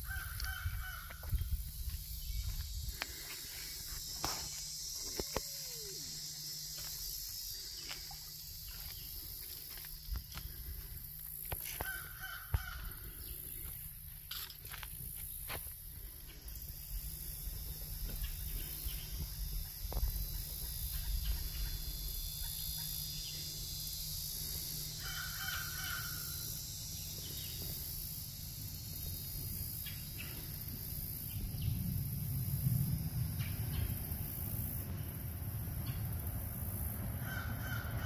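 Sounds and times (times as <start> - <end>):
crow-like caw: 0.0 - 1.3, 11.7 - 13.2, 25.0 - 26.3, 37.2 - 38.0
steady high hiss: 0.0 - 37.1.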